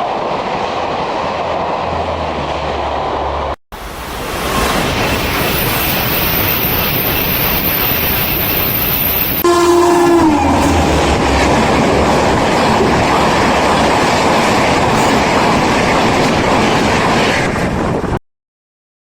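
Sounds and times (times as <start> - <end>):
train rushing past: 0.0 - 18.2
train horn: 9.4 - 11.6.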